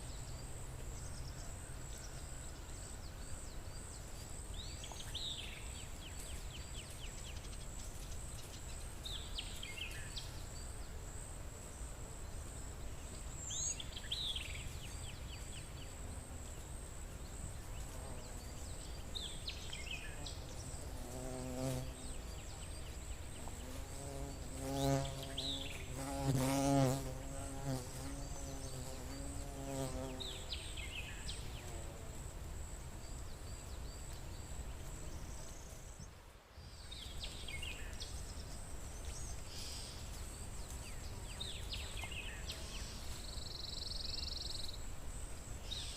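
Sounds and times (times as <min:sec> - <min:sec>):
flying insect buzzing past: 0:17.6 - 0:32.8.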